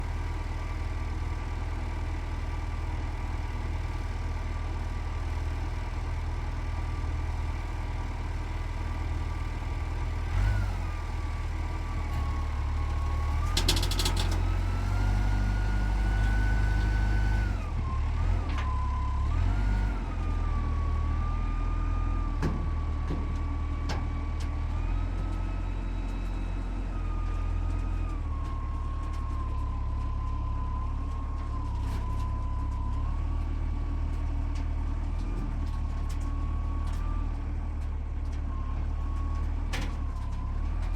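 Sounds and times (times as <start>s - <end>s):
short rattle: 13.4s - 14.5s.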